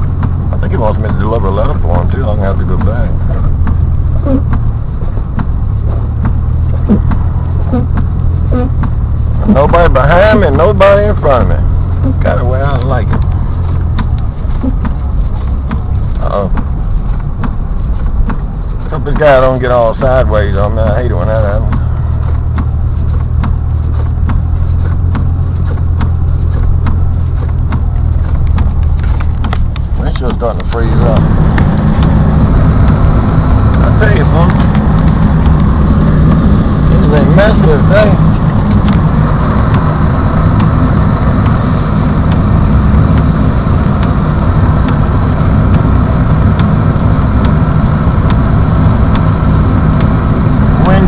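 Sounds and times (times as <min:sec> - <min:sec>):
engine and road rumble: 0:00.0 - 0:51.0
sharp repeating tick: 0:21.6 - 0:51.0.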